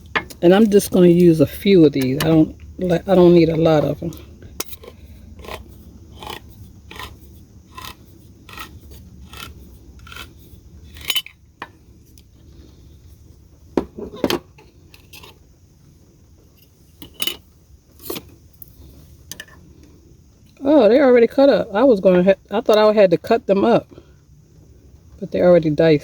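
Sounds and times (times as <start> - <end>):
metal utensil scraping a can: 4.6 - 10.3.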